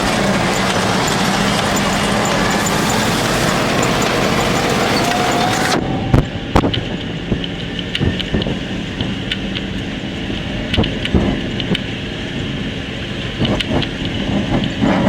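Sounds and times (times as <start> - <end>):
loud dense noise: 0.0 - 6.0
truck engine running: 0.8 - 5.8.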